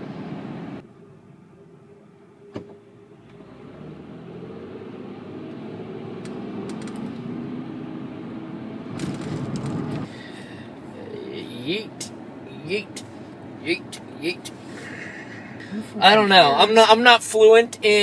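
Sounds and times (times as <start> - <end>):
car engine and tyre hum: 0.0 - 18.0.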